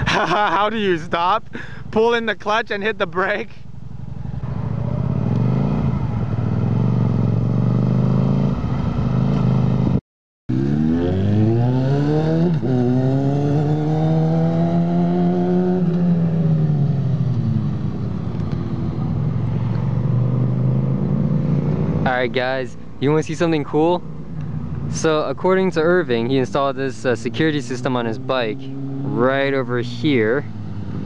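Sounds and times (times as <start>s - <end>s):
motorcycle engine revving: 3.9s - 22.3s, 25.8s - 31.0s.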